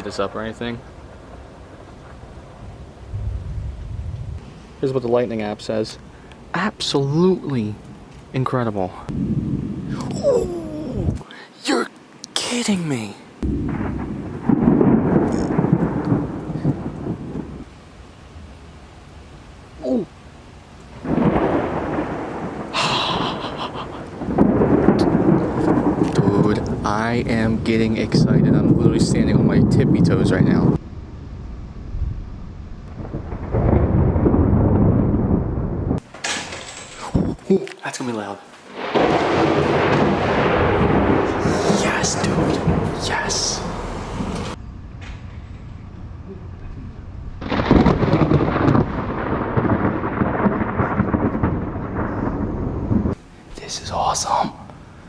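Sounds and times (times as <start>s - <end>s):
close thunder crack: 0.0s - 4.4s, 9.0s - 11.2s, 13.4s - 17.7s, 21.0s - 30.8s, 32.8s - 36.1s, 38.8s - 44.6s, 47.4s - 54.7s
thunder rumbling: 0.0s - 8.1s, 8.9s - 11.2s, 13.4s - 19.3s, 20.0s - 37.5s, 38.8s - 55.0s
steady hiss: 11.2s - 29.4s, 53.2s - 55.0s.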